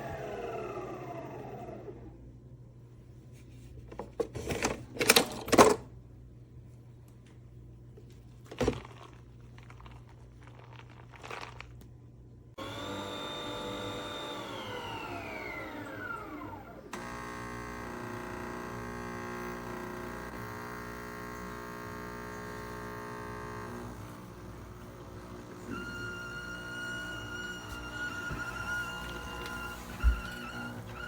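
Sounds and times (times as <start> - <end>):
mechanical hum: 0.0 - 31.0
motor whine: 12.6 - 31.0.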